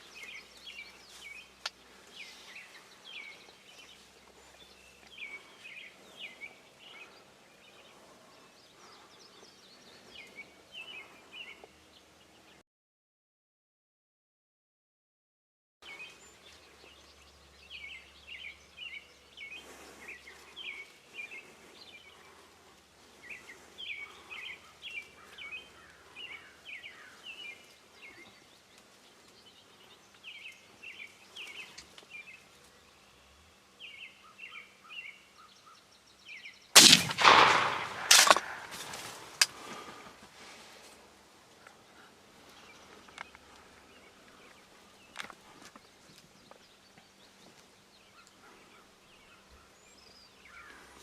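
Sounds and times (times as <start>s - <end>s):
small birds chirping: 0.0s - 12.6s, 15.8s - 40.2s, 40.8s - 51.0s
shotgun blast: 36.8s - 38.9s
sharp crack: 36.8s - 39.7s.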